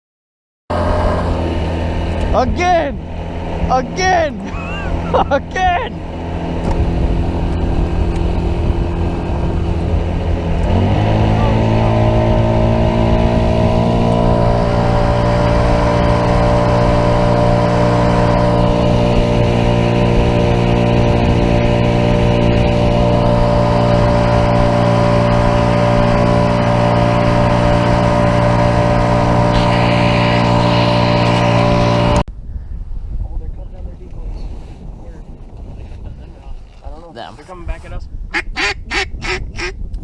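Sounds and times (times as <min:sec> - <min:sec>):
boat motor droning: 0:00.7 - 0:32.3.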